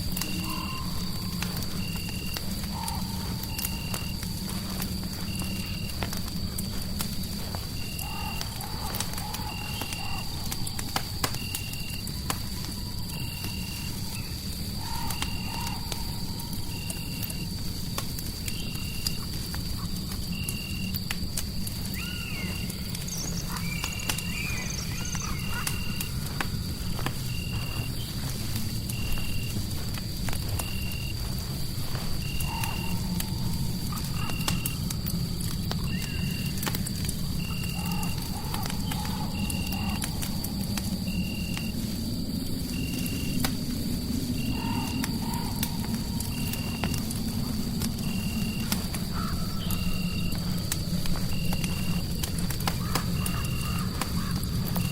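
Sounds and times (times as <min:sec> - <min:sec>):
fireplace crackling and popping: 0:00.0 - 0:54.9
arching animal-like calls: 0:21.9 - 0:29.9.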